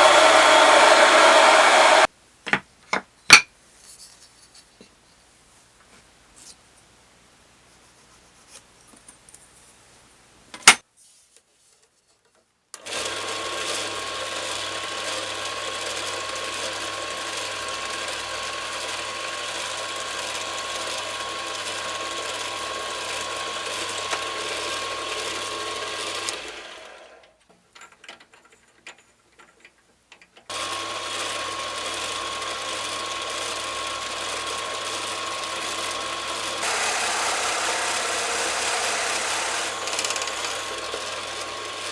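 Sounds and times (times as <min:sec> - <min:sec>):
power tool motor whining: 0:00.0 - 0:02.1, 0:20.2 - 0:27.2, 0:30.5 - 0:41.9
rough loud noise: 0:00.0 - 0:02.1.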